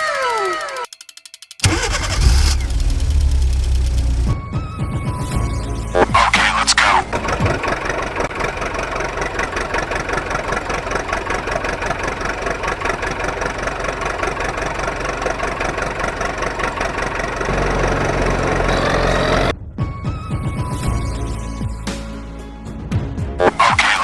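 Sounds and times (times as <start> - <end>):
engine idling: 1.6 - 4.4.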